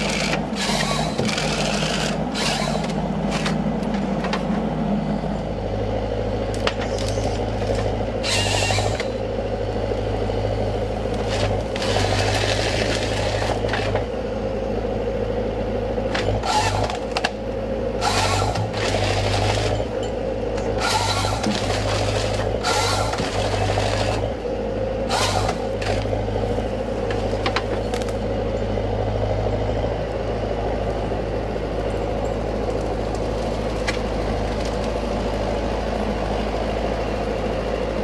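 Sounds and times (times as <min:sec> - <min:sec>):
harvester engine drone: 0:00.0 - 0:38.0.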